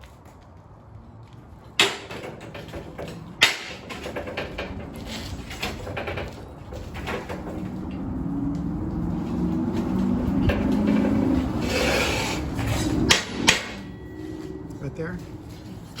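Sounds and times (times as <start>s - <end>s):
sharp knocks: 1.8s - 4.9s, 12.8s - 13.9s
steel plates rattling: 1.8s - 8.0s, 9.9s - 14.1s.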